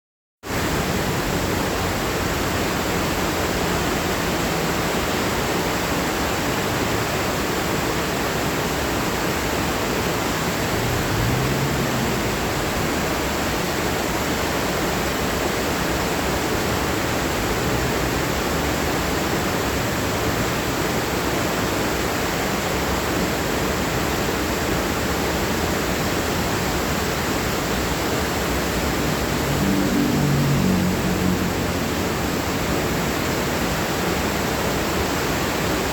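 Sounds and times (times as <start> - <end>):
heavy rain falling: 8.7 - 35.9.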